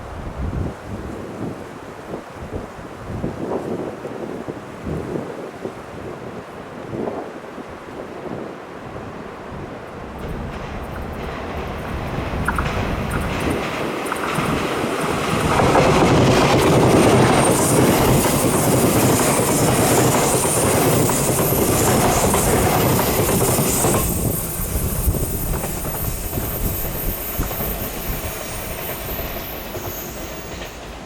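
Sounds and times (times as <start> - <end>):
train passing on rails: 3.3 - 31.0
high whine: 12.2 - 31.0.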